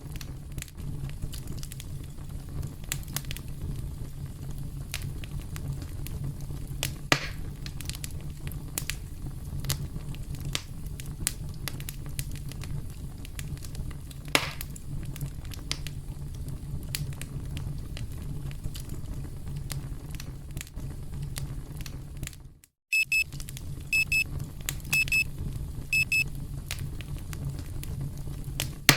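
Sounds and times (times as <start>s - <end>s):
campfire crackling: 0.0s - 22.4s, 23.1s - 28.9s
electronic alarm beeping: 22.9s - 23.2s, 24.0s - 24.2s, 24.9s - 25.2s, 26.0s - 26.2s.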